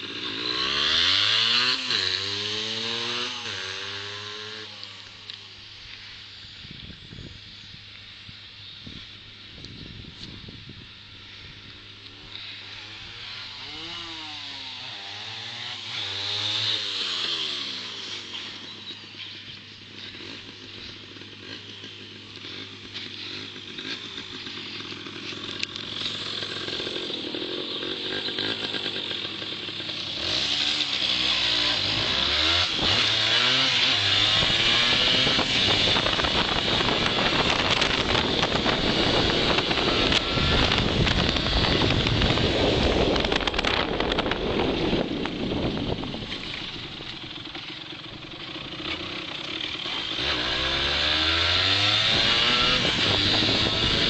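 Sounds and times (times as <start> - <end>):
motorcycle engine running: 0.0 - 54.0
wind buffeting microphone: 8.8 - 11.7, 34.2 - 47.1, 51.9 - 54.0.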